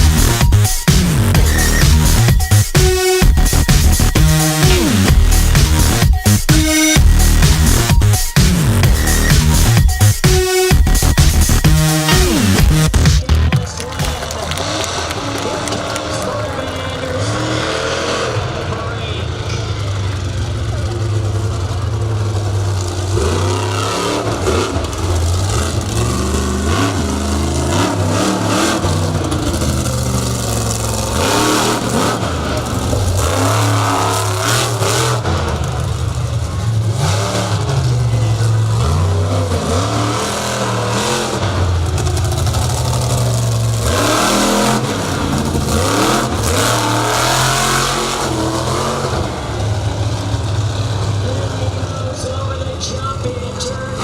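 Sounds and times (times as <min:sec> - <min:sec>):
monster truck engine revving: 0:00.0 - 0:54.0.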